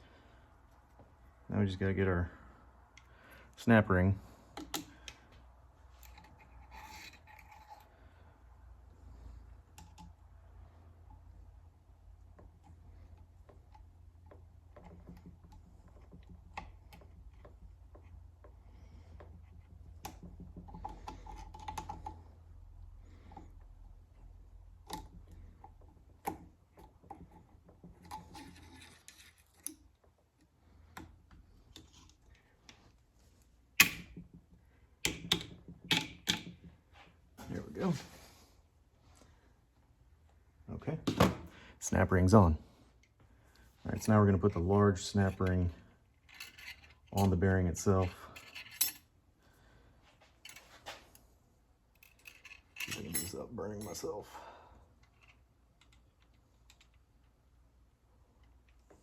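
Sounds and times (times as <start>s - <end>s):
small metal clicks and taps: 4.5s - 5.2s, 55.0s - 57.4s
metal parts scraping: 6.0s - 7.9s, 28.0s - 29.7s, 46.1s - 49.1s, 52.0s - 54.0s.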